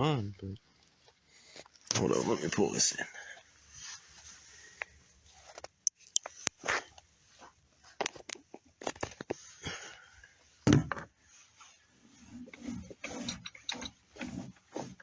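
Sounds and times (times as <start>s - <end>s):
heavy thump: 10.7s - 11.1s
rope hauling clicks and rustling: 12.1s - 15.0s.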